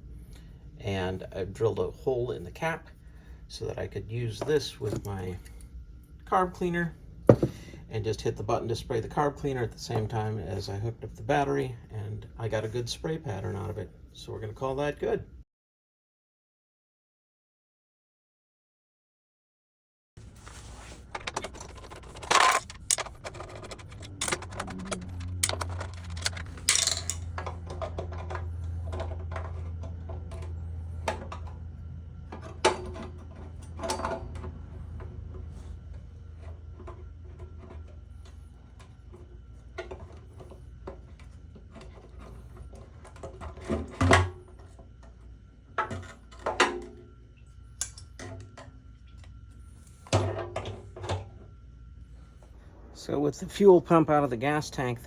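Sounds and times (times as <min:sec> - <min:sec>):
low steady hum: 0:00.0 - 0:15.4, 0:20.2 - 0:55.0
metal tools clinking: 0:21.1 - 0:27.9.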